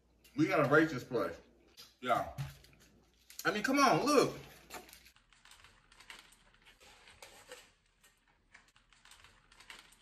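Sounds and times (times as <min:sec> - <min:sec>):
biting and chewing: 0:04.6 - 0:10.0.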